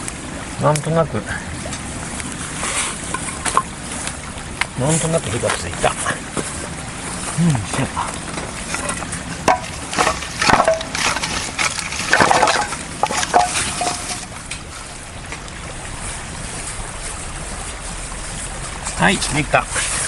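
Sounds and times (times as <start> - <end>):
campfire crackling: 0.0 - 19.4
sticks snapping and rustling: 8.6 - 14.6.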